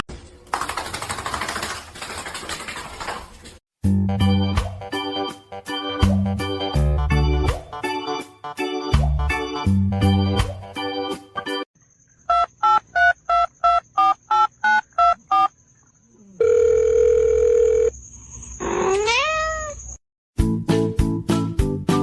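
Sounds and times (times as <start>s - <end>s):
music: 3.8s - 11.7s, 20.4s - 22.0s
steady dial tone: 16.4s - 17.9s
cat meowing: 18.8s - 19.9s.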